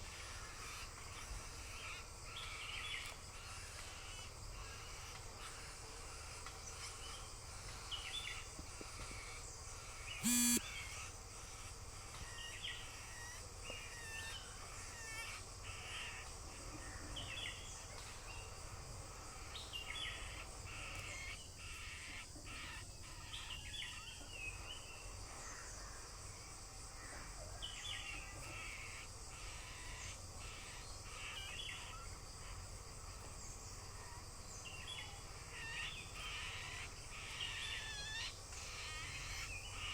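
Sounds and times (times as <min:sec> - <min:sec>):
bird chirping: 0:09.3 - 0:10.9
harsh bird call: 0:10.2 - 0:10.8.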